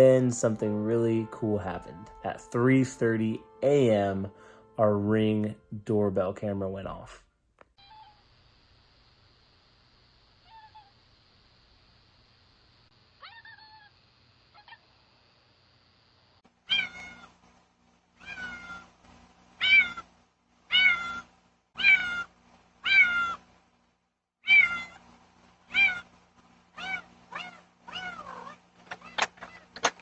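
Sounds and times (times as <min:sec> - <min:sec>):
faint steady hum: 0:00.0 - 0:30.0
cat meowing loudly: 0:16.7 - 0:17.3, 0:18.2 - 0:18.9, 0:19.6 - 0:20.0, 0:20.7 - 0:21.2, 0:21.8 - 0:23.4, 0:24.4 - 0:25.0, 0:25.7 - 0:26.0, 0:26.8 - 0:29.6.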